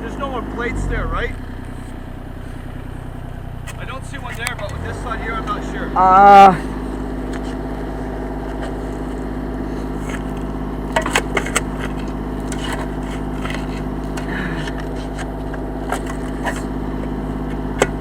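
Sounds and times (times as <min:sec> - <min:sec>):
loader engine running: 0:00.0 - 0:18.0.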